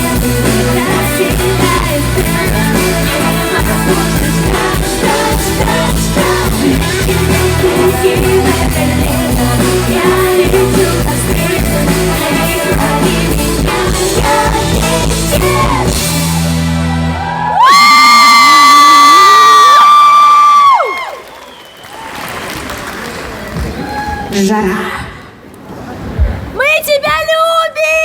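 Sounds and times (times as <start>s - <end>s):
woman singing lead: 0.0s - 16.5s
live rock-pop band playing: 0.0s - 18.8s.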